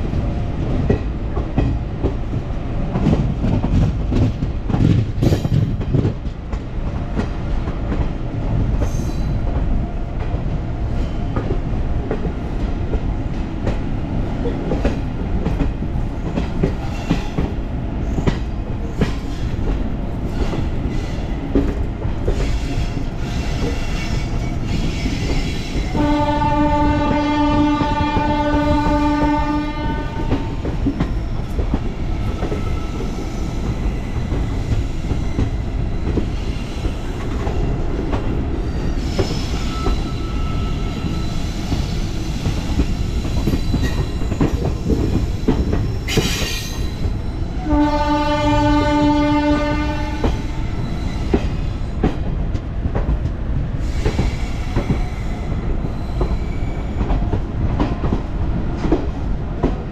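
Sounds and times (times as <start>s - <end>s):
train rumbling: 0.0s - 59.9s
locomotive horn blast: 25.9s - 30.6s, 47.6s - 50.4s.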